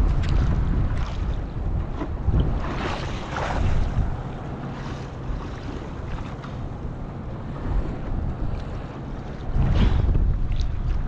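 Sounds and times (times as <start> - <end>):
choppy water sloshing: 0.0 - 11.0
wind buffeting microphone: 0.0 - 11.0
water splash: 2.4 - 4.2.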